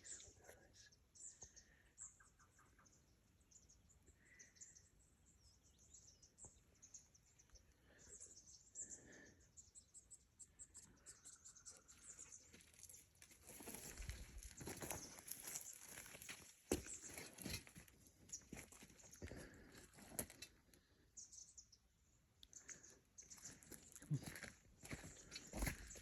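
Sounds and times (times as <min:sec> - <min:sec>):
distant bird calls: 0:00.0 - 0:12.6
light rustling footsteps: 0:23.5 - 0:26.0.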